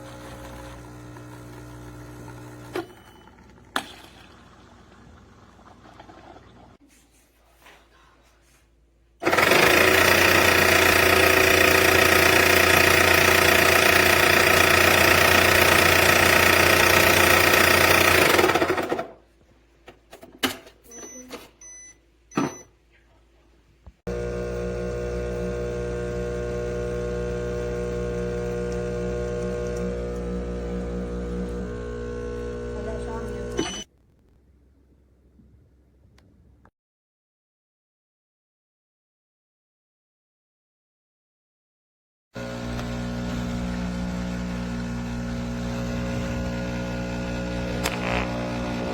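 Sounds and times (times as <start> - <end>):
espresso machine mechanical run: 0.0 - 3.7, 9.2 - 19.0, 24.1 - 33.9, 42.4 - 48.9
steady buzzing hum: 24.1 - 33.9, 42.4 - 48.9
clicks: 47.8 - 48.4.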